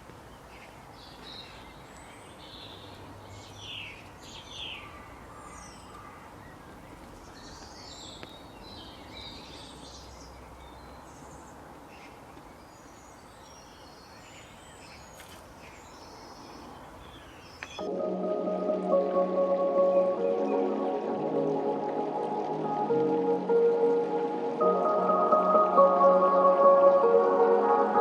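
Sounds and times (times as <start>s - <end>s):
small birds chirping: 0.2s - 17.9s.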